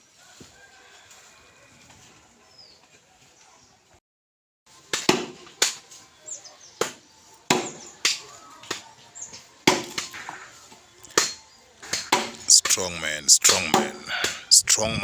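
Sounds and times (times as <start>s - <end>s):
hammer striking timber: 4.9s - 5.7s, 6.8s - 7.8s, 9.7s - 10.1s, 11.2s - 12.4s, 13.7s - 14.4s.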